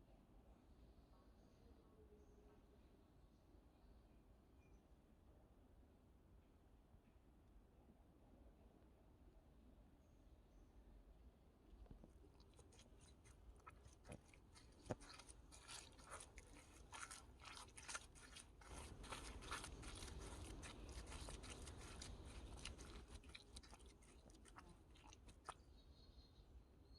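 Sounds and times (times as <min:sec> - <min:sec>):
bare feet squelching in mud: 0:11.8 - 0:25.6.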